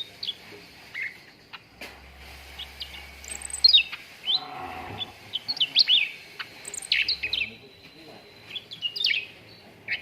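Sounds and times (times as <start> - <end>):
bird chirping: 2.5 - 10.0.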